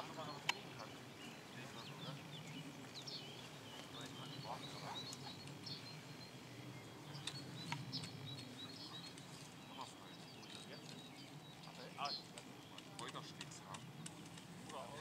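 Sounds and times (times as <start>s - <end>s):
small birds chirping: 0.0s - 15.0s
sharp clicks: 7.2s - 9.3s, 11.7s - 14.8s.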